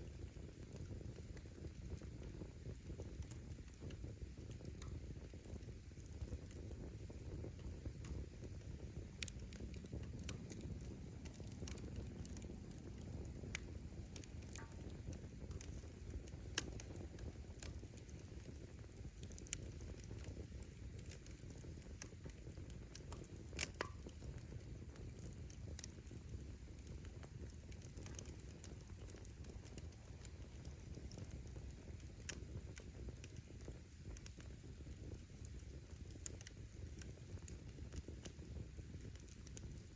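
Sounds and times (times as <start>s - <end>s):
firewood crackling and popping: 0.0s - 39.9s
low rush of flame: 0.0s - 39.9s.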